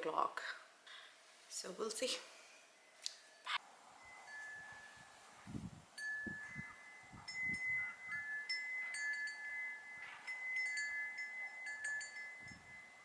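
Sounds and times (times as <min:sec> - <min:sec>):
metal wind chimes ringing: 0:02.8 - 0:13.0.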